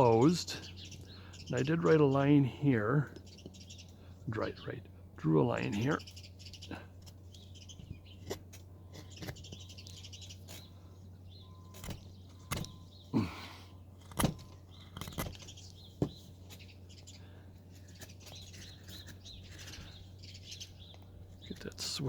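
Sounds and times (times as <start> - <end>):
finches chirping: 0.0 - 22.0
carving knife cutting wood: 7.0 - 10.7, 11.7 - 12.8, 13.9 - 16.7, 17.7 - 20.5.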